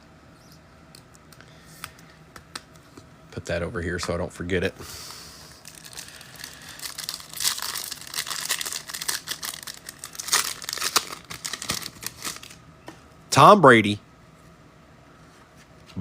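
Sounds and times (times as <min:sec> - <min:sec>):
foil wrapper crinkling: 0:05.5 - 0:12.6.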